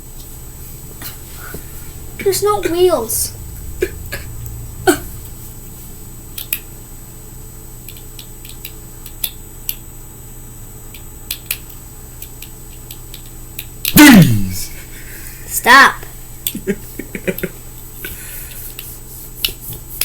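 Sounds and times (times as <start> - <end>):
low room hum: 0.0 - 20.0
light clicks of small parts: 6.4 - 6.7, 7.8 - 9.8, 10.9 - 13.7.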